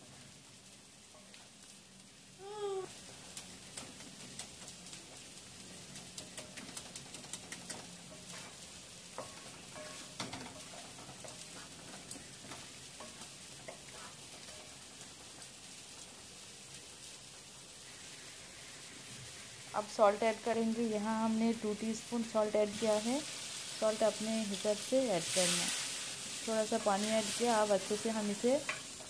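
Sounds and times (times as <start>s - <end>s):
chicken sizzling in oil: 0.0s - 29.0s
wooden spatula scraping pan: 8.1s - 14.9s.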